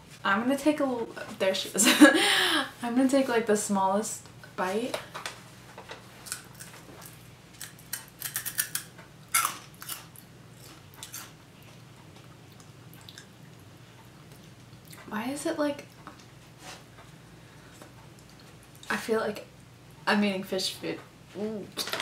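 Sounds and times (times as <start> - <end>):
crisp chip being bitten and chewed: 6.2 - 11.4.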